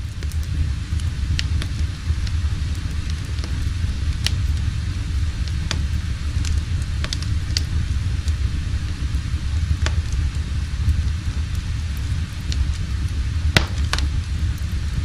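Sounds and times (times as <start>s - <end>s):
low rumble: 0.0s - 15.0s
wood fire crackling and popping: 0.0s - 15.0s.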